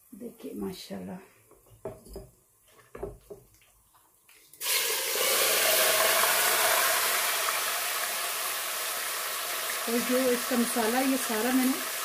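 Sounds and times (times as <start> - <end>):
chicken sizzling in hot oil: 4.6 - 12.0.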